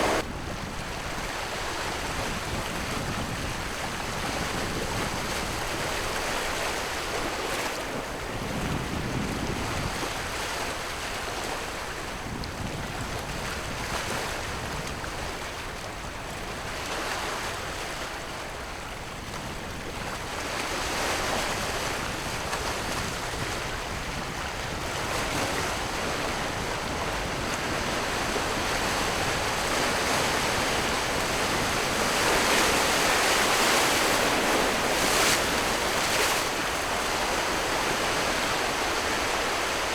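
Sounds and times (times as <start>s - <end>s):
sea surf washing in: 0.0s - 0.3s, 26.8s - 39.9s
wind on microphone: 0.0s - 10.6s, 19.1s - 39.9s.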